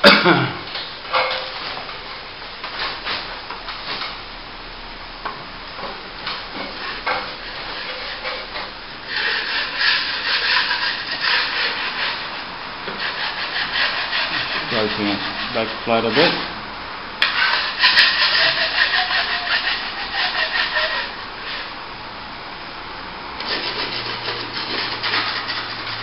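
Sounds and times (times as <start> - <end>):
trowel scraping wet plaster: 9.1 - 12.2, 13.0 - 16.5, 17.2 - 21.1, 23.4 - 26.0.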